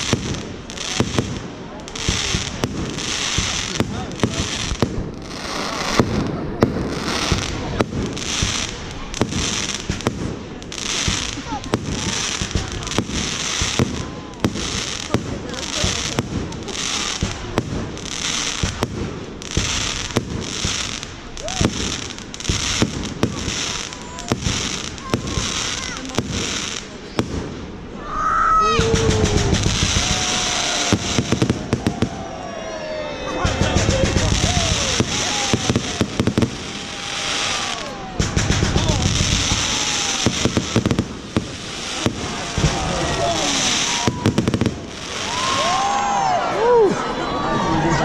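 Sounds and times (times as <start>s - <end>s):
crackling fizzing hiss: 0.0s - 28.0s
low rumbling bangs: 38.0s - 44.9s.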